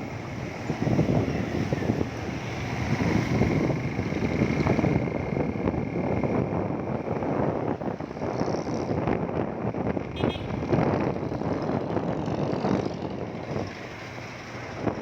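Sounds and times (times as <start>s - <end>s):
wind buffeting microphone: 0.0s - 15.0s
motorcycle running: 0.1s - 15.0s.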